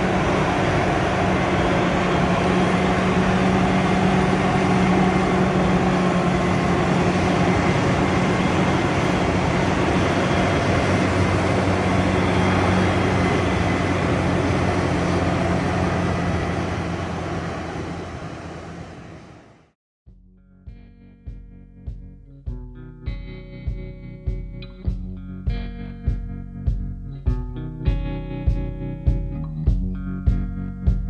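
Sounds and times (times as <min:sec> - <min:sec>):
diesel engine running: 0:00.0 - 0:19.7.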